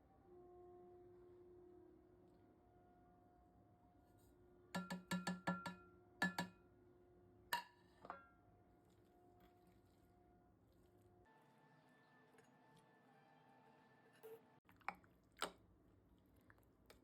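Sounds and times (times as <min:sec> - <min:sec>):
glass clink: 0:04.8 - 0:06.6
utensils and dishes knocking: 0:04.8 - 0:06.6.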